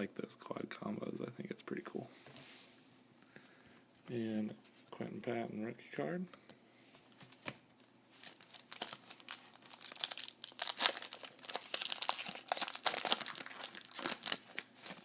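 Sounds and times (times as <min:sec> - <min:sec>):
wrapper tearing and crinkling: 0:08.2 - 0:15.0.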